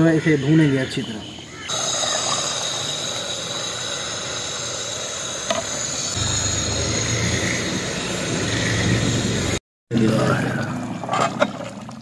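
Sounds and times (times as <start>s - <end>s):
meat sizzling in a pot: 1.7s - 7.8s.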